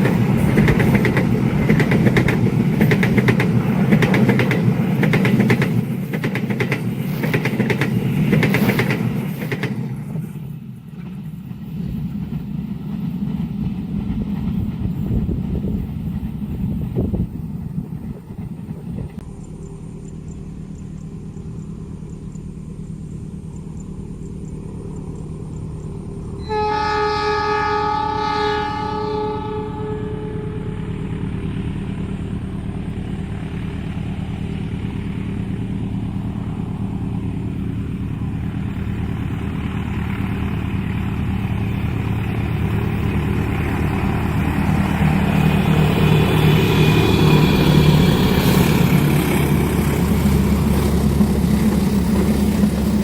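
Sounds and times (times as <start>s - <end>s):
approaching train rumble: 0.0s - 53.0s
low engine hum: 13.6s - 26.6s, 29.6s - 53.0s
train horn chord: 26.4s - 31.4s.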